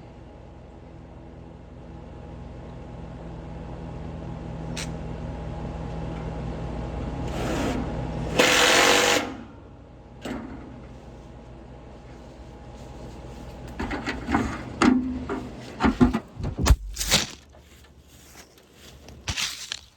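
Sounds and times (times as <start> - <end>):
machine hum: 3.9 - 19.9.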